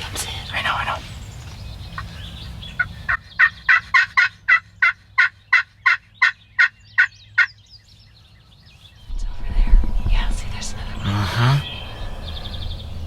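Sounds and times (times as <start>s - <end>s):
wild turkey yelping: 2.8s - 7.5s.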